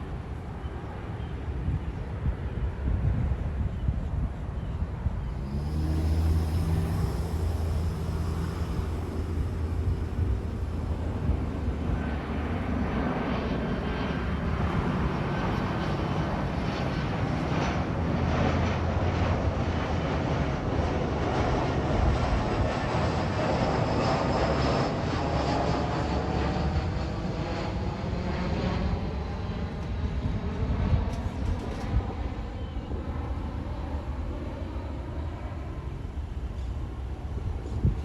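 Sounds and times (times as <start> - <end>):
jet airliner engines rumbling: 0.0 - 38.0
faint high whine: 5.2 - 17.6.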